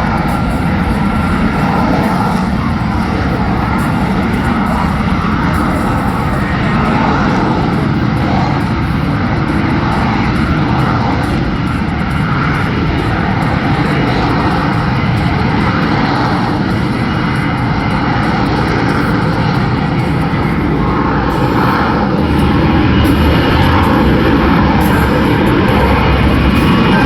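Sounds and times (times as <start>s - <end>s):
jet engine roaring: 0.0s - 27.0s.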